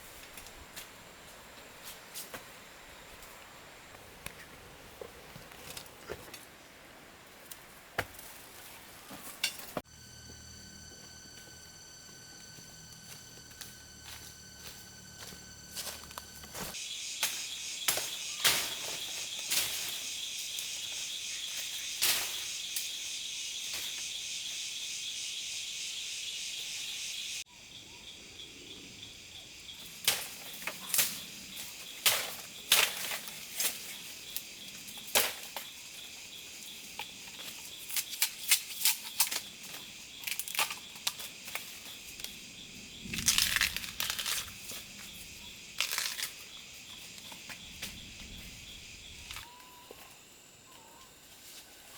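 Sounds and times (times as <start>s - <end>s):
insects chorus: 0.0s - 7.0s, 8.9s - 51.9s
clicks snaps and crackles: 37.9s - 42.4s, 43.1s - 44.8s, 45.8s - 46.4s.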